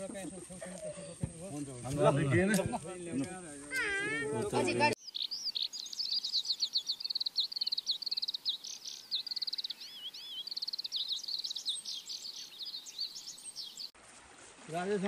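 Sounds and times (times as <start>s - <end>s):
birds chirping and trilling: 2.4s - 14.0s.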